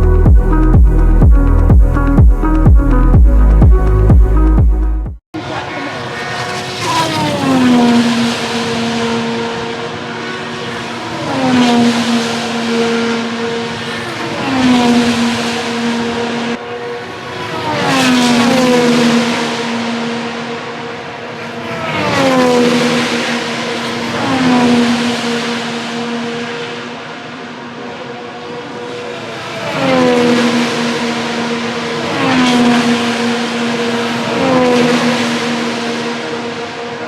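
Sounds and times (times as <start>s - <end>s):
race cars passing at high speed: 5.4s - 37.0s.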